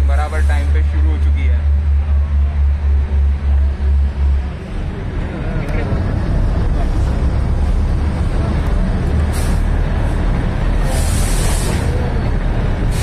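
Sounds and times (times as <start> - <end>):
train engine and wheels rumbling: 0.0 - 13.0
air hiss: 10.8 - 12.0.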